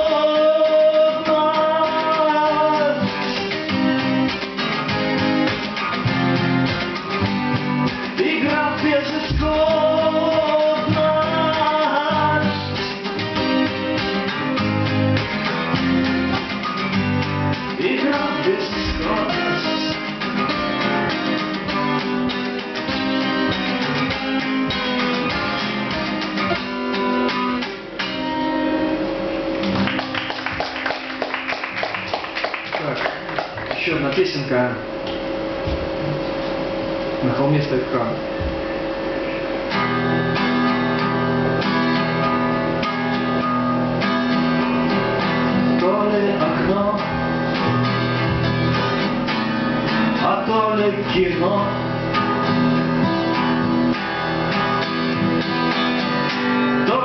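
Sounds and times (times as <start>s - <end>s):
person singing: 0.0s - 3.1s, 8.2s - 12.8s, 17.8s - 20.0s, 56.7s - 57.0s
acoustic guitar strumming: 0.0s - 57.0s.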